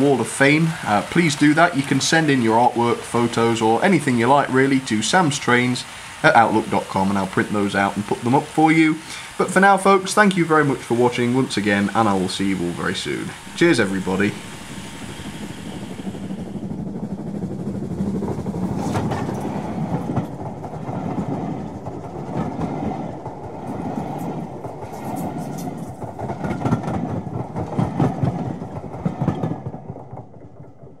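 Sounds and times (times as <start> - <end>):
railway carriage rumble: 0.0 - 31.0
wheel clicks over rail joints: 18.2 - 31.0.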